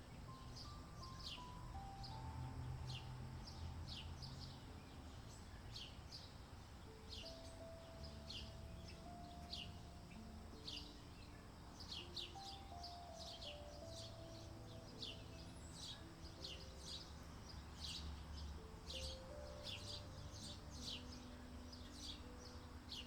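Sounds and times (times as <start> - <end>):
birds chirping: 0.0 - 23.0
soft background music: 0.0 - 23.0.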